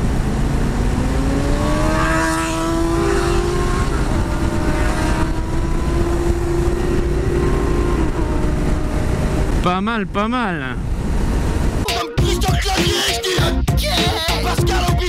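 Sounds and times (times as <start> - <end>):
wind rumble: 0.0 - 9.7
motorcycle engine at cruise: 0.0 - 11.8.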